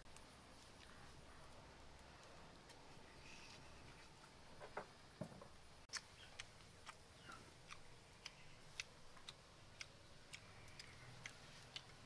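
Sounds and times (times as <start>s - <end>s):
person chewing food: 5.9s - 12.0s.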